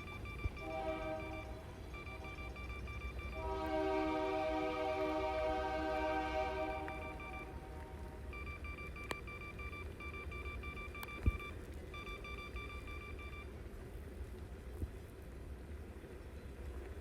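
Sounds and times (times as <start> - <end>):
steady low rumble: 0.0 - 17.0
electronic chime beeping rapidly: 1.2 - 3.4.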